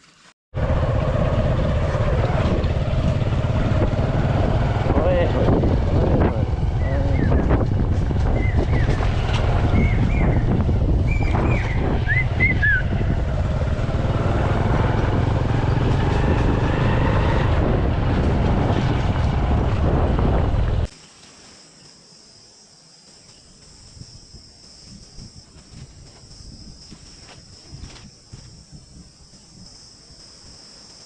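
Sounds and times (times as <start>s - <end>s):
wind buffeting microphone: 0.6s - 20.9s
birds chirping: 6.6s - 13.2s
insects trilling: 20.9s - 31.0s.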